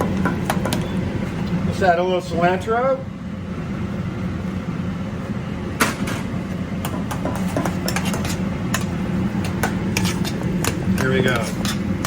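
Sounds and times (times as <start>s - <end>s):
steady low hum: 0.0s - 12.0s
utensil stirring vegetables in pan: 7.1s - 12.0s.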